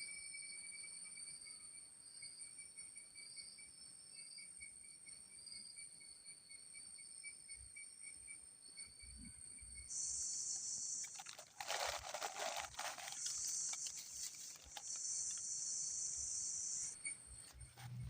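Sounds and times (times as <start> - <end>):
insects calling in pulsing tones: 0.6 - 18.0
crunching and crinkling: 9.9 - 16.9
high-pitched insect buzz: 9.9 - 17.5.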